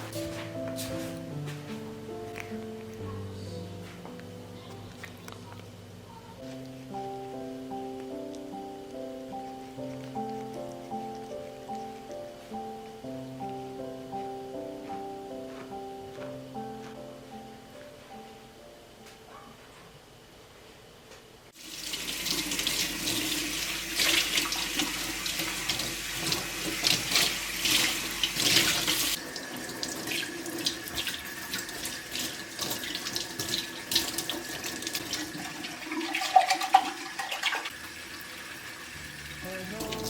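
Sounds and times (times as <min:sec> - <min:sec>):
tap water splashing into sink: 0:29.8 - 0:37.7.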